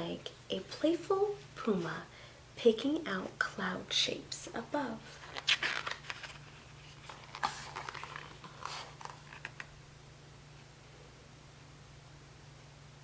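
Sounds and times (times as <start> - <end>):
book pages rustling: 5.0 - 9.8.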